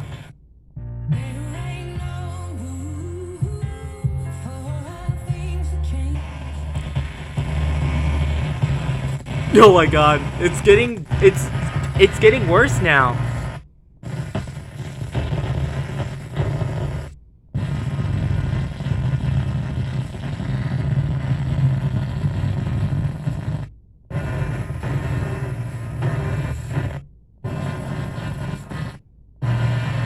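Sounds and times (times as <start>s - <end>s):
distorted radio noise: 9.4s - 13.4s.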